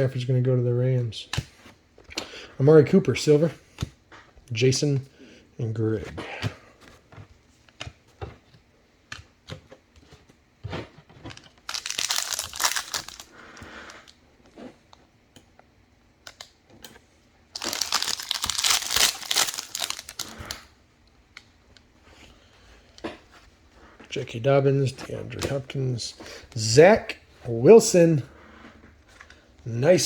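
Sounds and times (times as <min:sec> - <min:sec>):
wrappers torn and crinkled: 0:11.7 - 0:14.2, 0:17.6 - 0:20.7.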